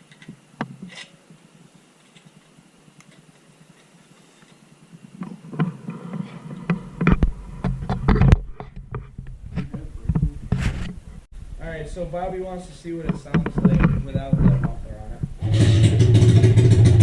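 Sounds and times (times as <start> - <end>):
irregular knocks and clatter: 13.0 - 17.0.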